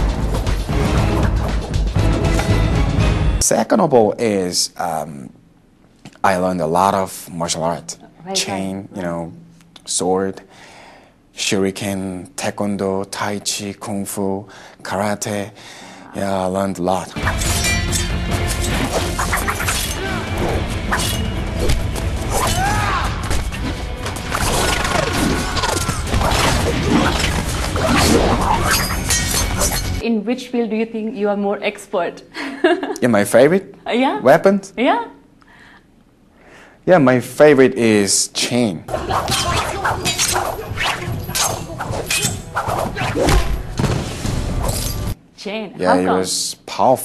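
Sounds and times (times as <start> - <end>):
soundtrack music: 0.0 - 3.4, 17.2 - 30.0
metallic clashes: 17.2 - 20.2, 20.8 - 21.4, 24.3 - 30.0, 38.9 - 42.6
fight crashes and whacks: 24.3 - 29.8, 39.0 - 44.9.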